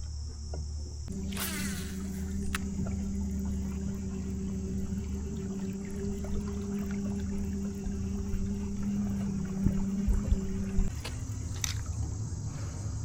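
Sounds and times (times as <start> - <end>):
electric motor humming: 0.0 - 12.4
water splash: 1.1 - 3.1
click: 2.4 - 2.7.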